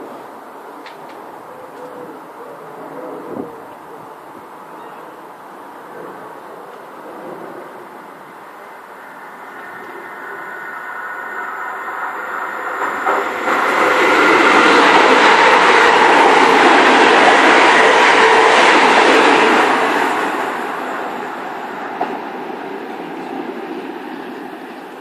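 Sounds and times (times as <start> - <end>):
train passing rumble: 0.0 - 25.0.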